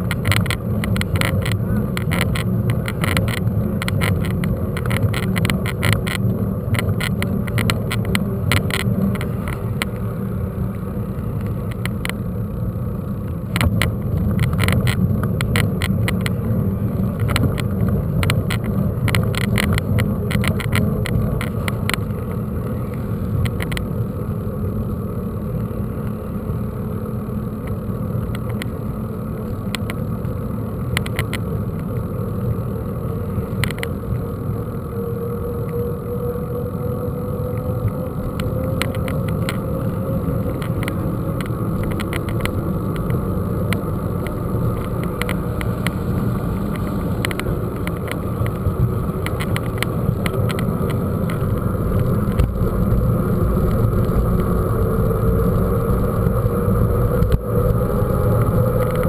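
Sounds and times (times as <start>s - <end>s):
tyres rumbling: 0.0s - 26.5s
bike rattling over bumps: 0.0s - 59.0s
wind noise: 0.0s - 59.0s.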